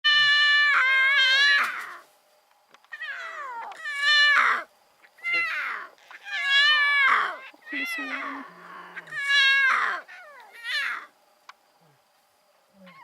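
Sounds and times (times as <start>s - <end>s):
lion cub mewing cries: 0.1s - 2.0s, 2.9s - 11.1s.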